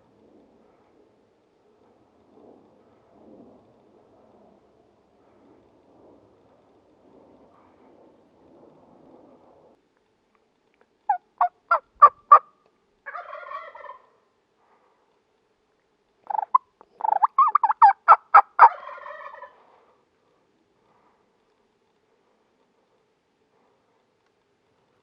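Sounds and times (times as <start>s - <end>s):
turkey gobble: 11.1s - 12.5s, 13.1s - 14.1s, 16.3s - 19.6s
turkey yelps: 13.1s - 14.1s, 16.3s - 19.6s.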